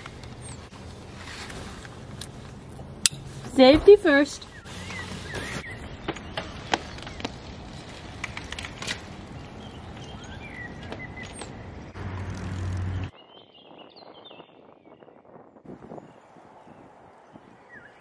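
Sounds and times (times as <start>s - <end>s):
birds chirping: 2.4s - 15.2s.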